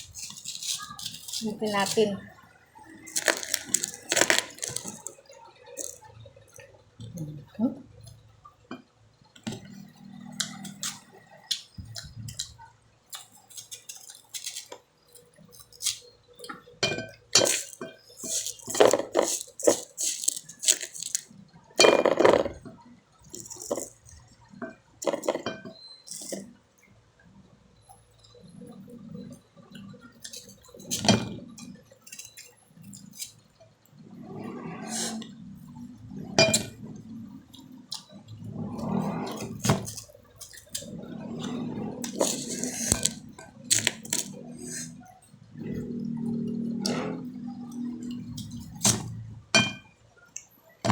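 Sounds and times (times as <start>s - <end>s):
person chewing and biting: 0.0s - 2.0s, 2.9s - 5.2s, 5.8s - 6.1s, 13.1s - 16.1s, 17.4s - 21.3s, 23.3s - 24.3s, 42.0s - 44.9s
dishes clinking: 16.8s - 21.2s, 23.4s - 26.4s, 36.3s - 36.8s, 48.9s - 49.9s.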